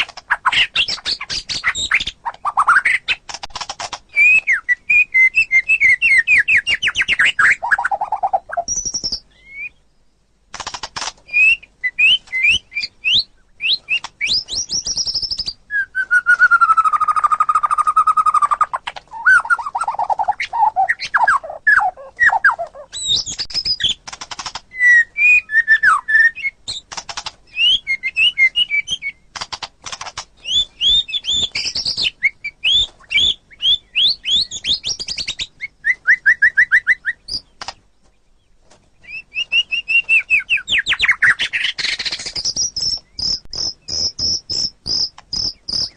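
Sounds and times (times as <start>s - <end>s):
songbird singing whistled phrases: 4.1s - 9.9s, 11.3s - 24.0s, 24.7s - 26.8s, 27.5s - 29.3s, 30.4s - 37.6s, 39.0s - 45.9s.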